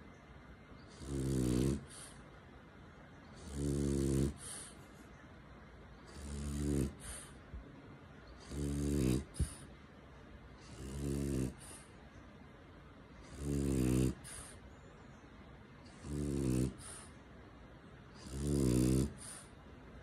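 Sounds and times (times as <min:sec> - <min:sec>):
dog snoring: 0:00.9 - 0:02.2, 0:03.3 - 0:04.8, 0:06.0 - 0:07.4, 0:08.4 - 0:09.7, 0:10.6 - 0:11.9, 0:13.2 - 0:14.7, 0:15.9 - 0:17.2, 0:18.1 - 0:19.6
breathy hiss: 0:01.0 - 0:02.6, 0:03.4 - 0:05.1, 0:06.1 - 0:07.6, 0:08.3 - 0:12.2, 0:13.2 - 0:14.8, 0:15.8 - 0:20.0.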